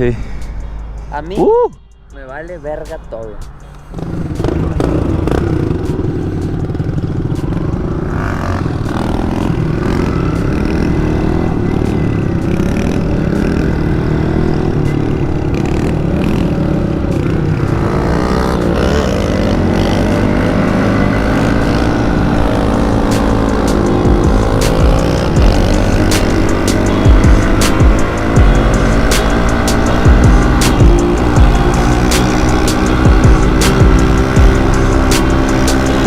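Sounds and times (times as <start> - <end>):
mini bike engine revving: 8.0 - 36.0.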